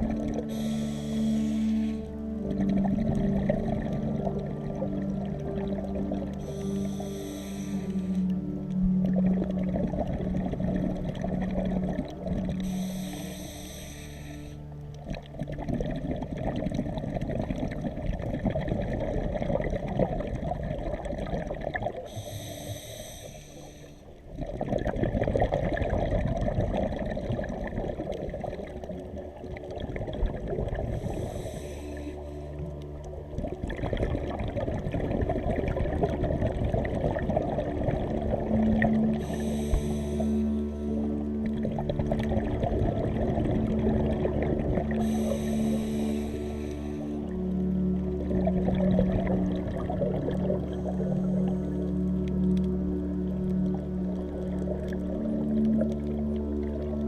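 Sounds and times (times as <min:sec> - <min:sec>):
exhaled bubbles burbling: 0:00.0 - 0:07.2, 0:07.9 - 0:13.0, 0:14.9 - 0:22.2, 0:24.2 - 0:57.0
regulator inhalation hiss: 0:00.5 - 0:02.1, 0:06.4 - 0:08.2, 0:12.6 - 0:14.6, 0:22.1 - 0:24.1, 0:31.0 - 0:32.6, 0:39.2 - 0:40.6, 0:45.0 - 0:47.2.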